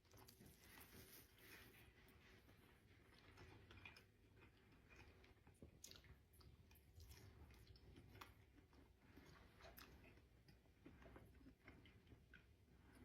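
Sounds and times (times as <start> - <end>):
chewing mouth clicks: 3.1 - 13.0.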